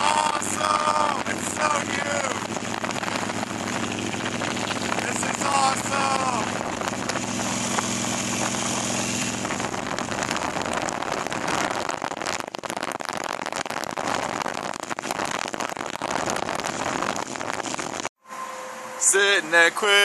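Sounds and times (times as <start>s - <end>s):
motorcycle engine running: 0.0s - 11.6s
wind rushing over microphone: 0.0s - 18.1s.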